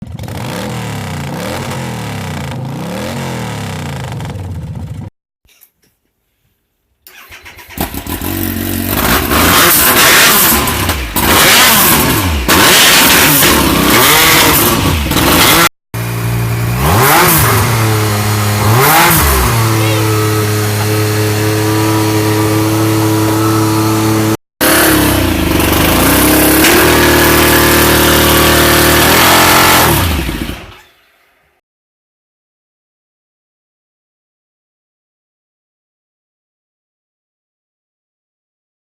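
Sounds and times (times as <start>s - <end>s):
motorcycle engine idling and revving: 0.0s - 5.1s, 7.2s - 30.9s.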